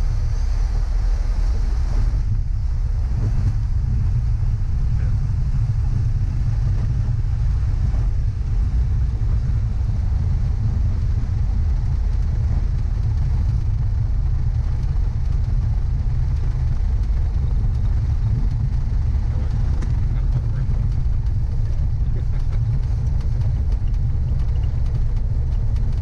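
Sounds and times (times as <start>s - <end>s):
light aircraft engine running: 0.0s - 26.0s
wind buffeting microphone: 0.0s - 26.0s.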